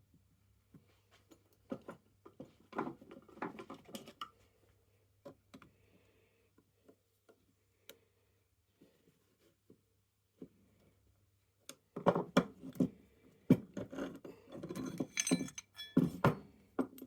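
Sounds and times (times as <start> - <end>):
hand tools clicking and knocking: 14.6 - 17.0.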